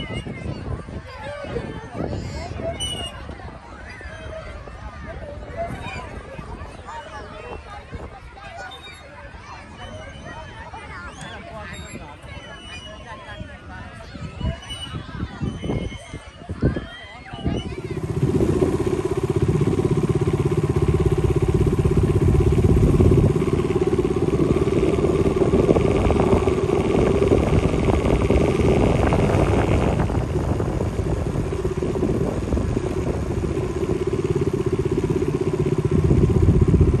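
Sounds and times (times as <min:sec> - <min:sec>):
motor engine running: 0:17.4 - 0:37.0
high whine: 0:17.7 - 0:37.0.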